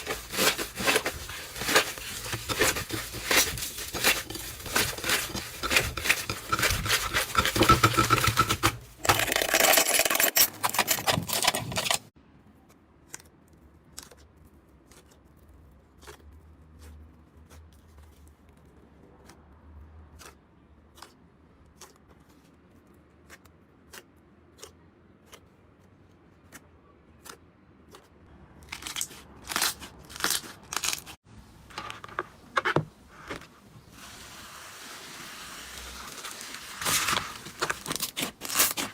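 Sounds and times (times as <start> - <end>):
slime crackling and crunching: 0.0 - 8.5, 28.6 - 31.2, 34.8 - 38.9.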